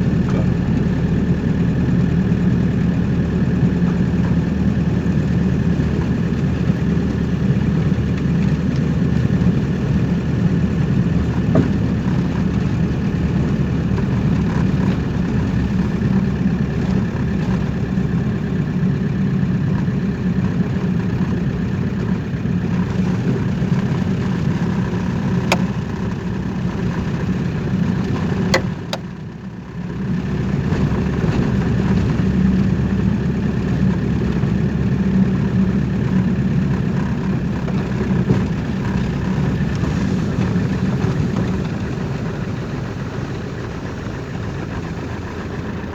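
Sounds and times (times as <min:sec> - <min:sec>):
car engine and road noise: 0:00.0 - 0:45.9
sharp clicks: 0:25.5 - 0:25.8.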